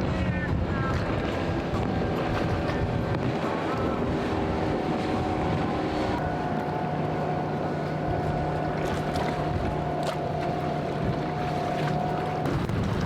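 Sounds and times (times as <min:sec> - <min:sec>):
motorboat engines running: 0:00.0 - 0:13.0
surf: 0:00.0 - 0:13.0
wind on microphone: 0:00.0 - 0:13.0.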